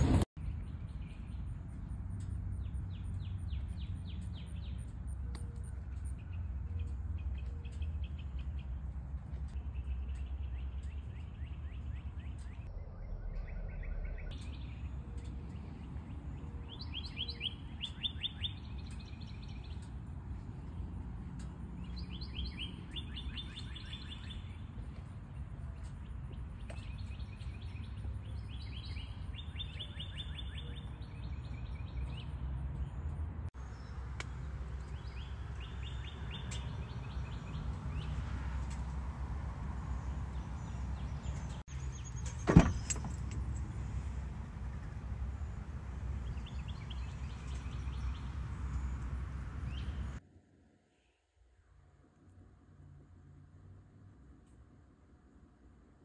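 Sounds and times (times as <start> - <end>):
steady low rumble: 0.0 - 18.0
songbirds trilling: 0.4 - 50.2.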